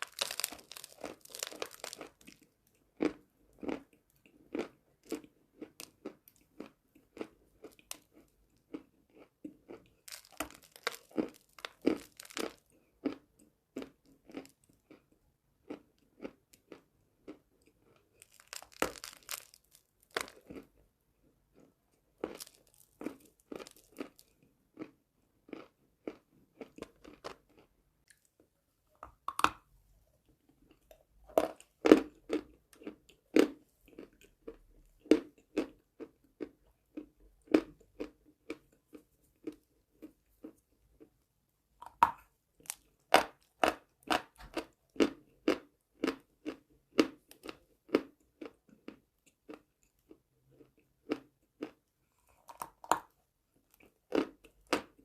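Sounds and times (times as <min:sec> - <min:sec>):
person crunching chalk: 0:00.0 - 0:02.3, 0:18.2 - 0:20.5.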